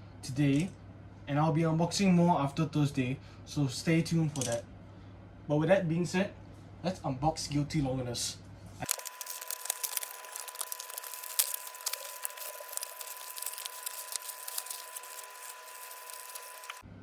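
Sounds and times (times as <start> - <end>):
plastic and paper crinkling: 8.8 - 16.8.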